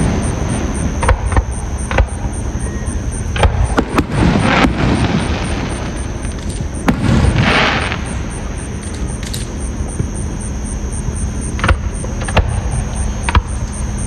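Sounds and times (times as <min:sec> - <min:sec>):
fireworks bangs and booms: 0:00.0 - 0:02.6, 0:03.2 - 0:10.4, 0:11.1 - 0:13.6
noisy fireworks bursts: 0:00.0 - 0:14.0.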